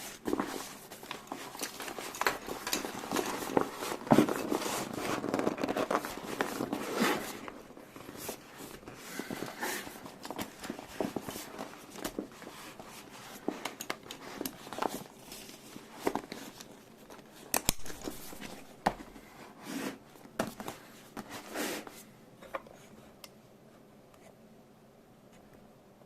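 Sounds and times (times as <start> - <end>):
plastic packaging crinkling: 0.2 - 12.8.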